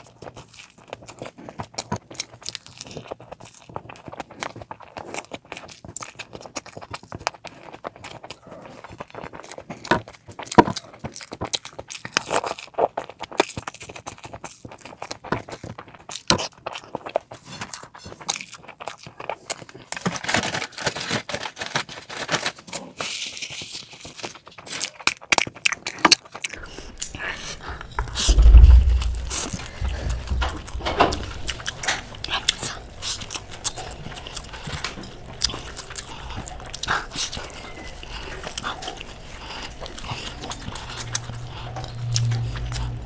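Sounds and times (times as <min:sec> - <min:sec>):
wet chewing and smacking: 0:00.0 - 0:20.6, 0:22.9 - 0:43.0
crunching clicks: 0:26.5 - 0:43.0.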